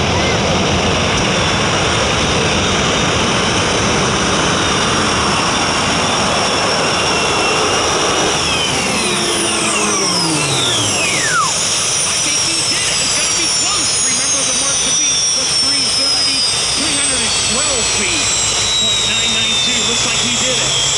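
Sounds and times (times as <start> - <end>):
tractor engine with jet-like whine: 0.0 - 20.9
whistling tones dropping in pitch: 4.4 - 20.9.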